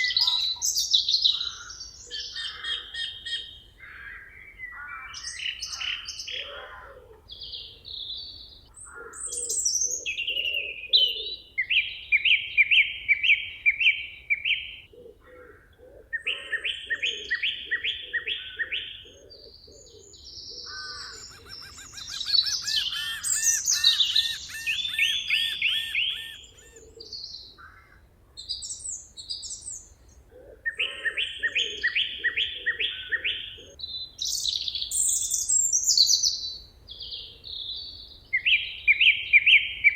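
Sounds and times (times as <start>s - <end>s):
low pulsing bird calls: 14.5s - 39.9s
birds singing high notes: 20.8s - 26.9s.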